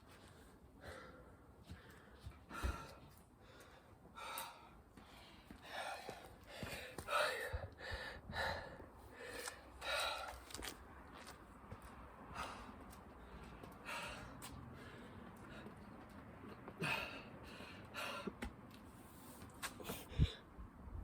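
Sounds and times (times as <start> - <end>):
person breathing hard and gasping: 0.8 - 10.5.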